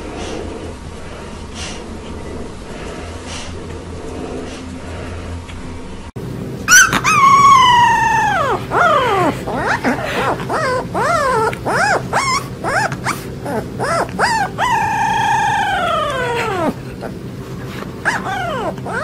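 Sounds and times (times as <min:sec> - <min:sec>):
dog howling and whining: 0:06.6 - 0:19.0.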